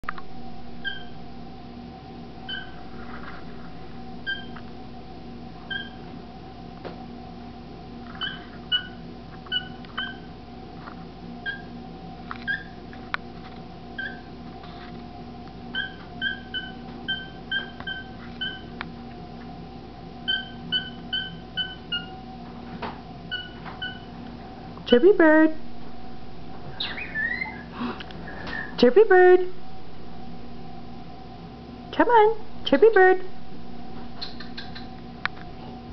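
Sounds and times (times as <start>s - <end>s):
faint hum: 0.0s - 35.9s
cockatiel peeping: 0.8s - 1.2s, 2.5s - 2.8s, 5.7s - 6.0s, 8.1s - 10.3s, 11.4s - 11.7s, 12.4s - 12.8s, 14.0s - 14.3s, 15.8s - 18.7s, 20.3s - 22.1s, 23.3s - 24.1s, 26.8s - 27.7s, 34.2s - 34.9s.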